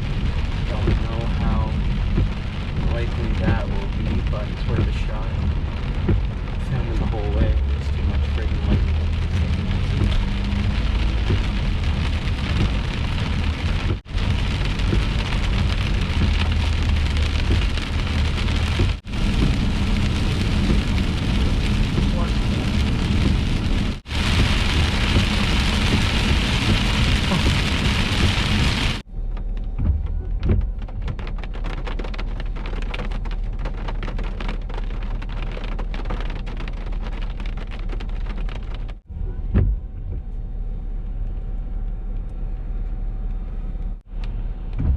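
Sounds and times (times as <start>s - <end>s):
heavy rain pelting a car: 0.0s - 40.2s
low rumble: 0.0s - 44.9s.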